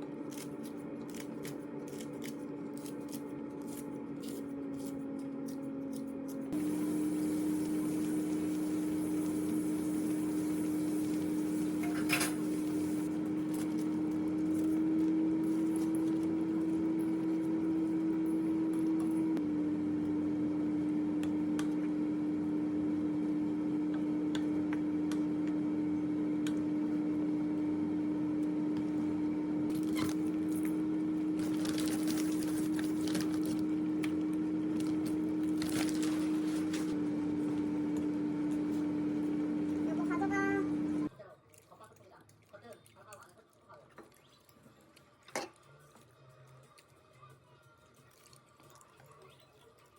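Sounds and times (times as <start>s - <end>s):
appliance hum: 0.0s - 41.1s.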